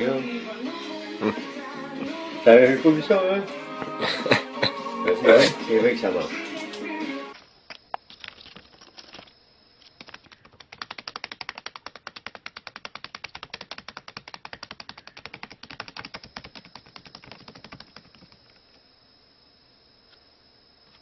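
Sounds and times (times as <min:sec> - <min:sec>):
rapid sharp clicks: 0:07.8 - 0:18.8.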